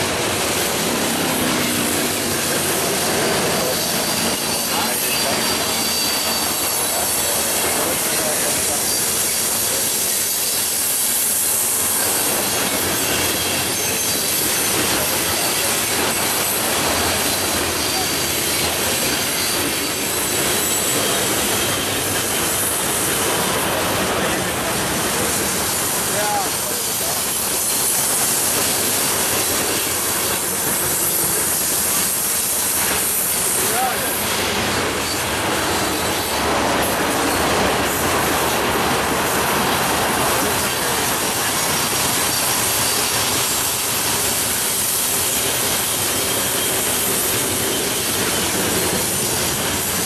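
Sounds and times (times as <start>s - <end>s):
train cars rolling on rails: 0.0s - 50.0s.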